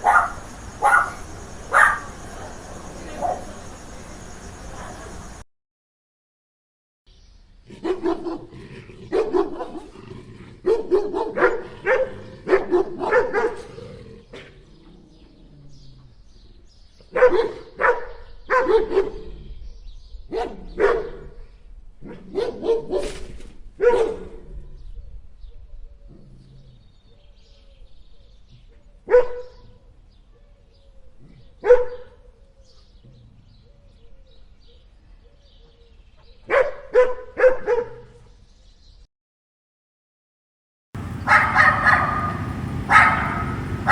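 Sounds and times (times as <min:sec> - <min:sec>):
dog barking: 0:00.0 - 0:02.2, 0:03.2 - 0:03.5, 0:07.8 - 0:08.5, 0:09.1 - 0:10.0, 0:10.6 - 0:13.8, 0:17.1 - 0:19.3, 0:20.3 - 0:21.3, 0:22.0 - 0:23.2, 0:23.8 - 0:24.4, 0:29.1 - 0:29.8, 0:31.6 - 0:32.3, 0:36.5 - 0:38.2, 0:41.0 - 0:43.9.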